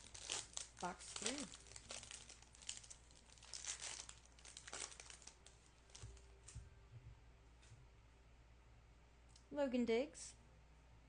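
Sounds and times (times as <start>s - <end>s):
wrapper crinkling and tearing: 0.0s - 6.3s.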